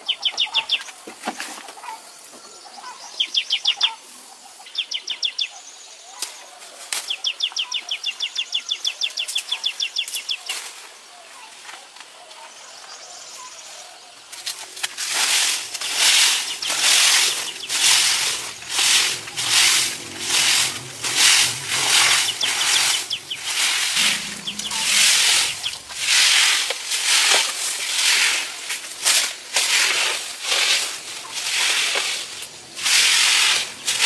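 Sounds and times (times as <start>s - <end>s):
hand tool rasping on surface: 16.0s - 27.3s.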